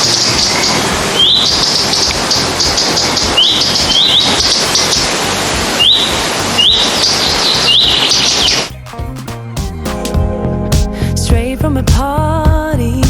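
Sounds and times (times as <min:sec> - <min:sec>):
songbird singing buzzy trill: 0:00.0 - 0:08.7
steady hiss: 0:00.0 - 0:08.8.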